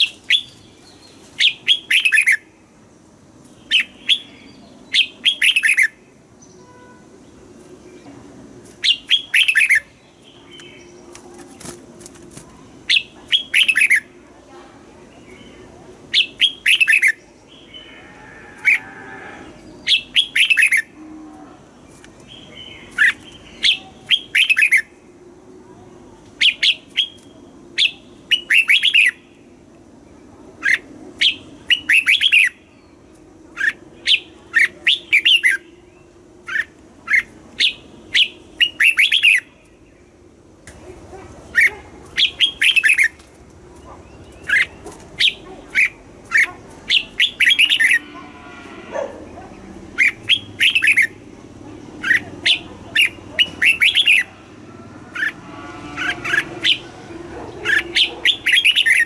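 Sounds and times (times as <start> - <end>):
bird singing clear notes: 43.8 - 51.2.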